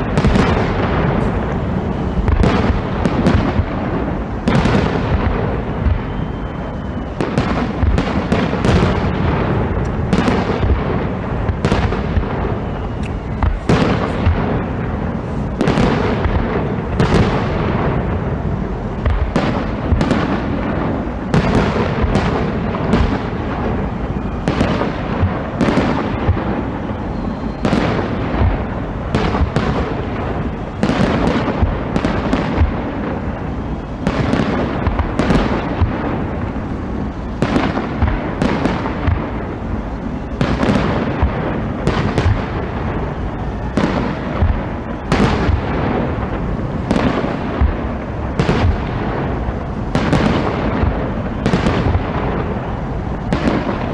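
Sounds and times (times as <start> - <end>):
fireworks exploding: 0.0 - 53.9.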